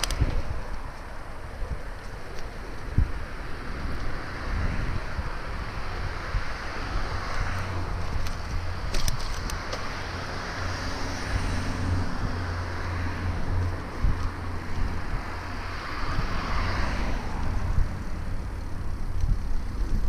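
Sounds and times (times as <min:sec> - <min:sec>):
road noise: 0:00.0 - 0:20.0
traffic noise: 0:00.0 - 0:20.0
wind rumble: 0:00.0 - 0:20.0.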